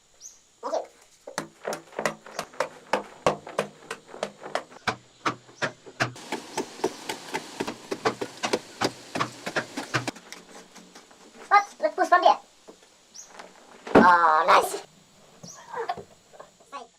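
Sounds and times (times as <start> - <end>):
steady hiss: 0.0 - 1.7, 6.0 - 16.9.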